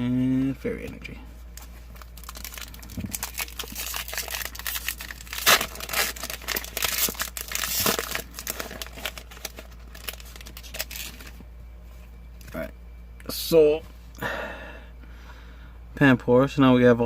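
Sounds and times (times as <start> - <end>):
foil wrapper crinkling and tearing: 1.9 - 11.4.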